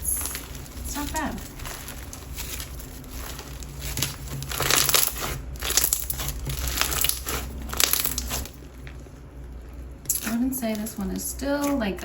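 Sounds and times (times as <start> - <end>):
crunchy slime squeezed by hand: 0.0 - 9.0.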